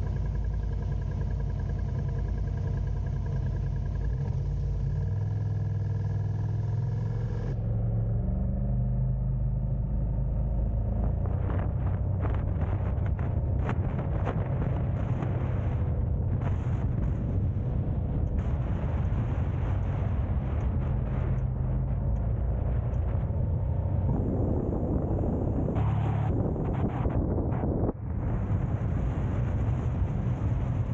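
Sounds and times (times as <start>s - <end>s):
car road and engine rumble: 0.0s - 30.9s
faint steady whine: 9.0s - 30.9s.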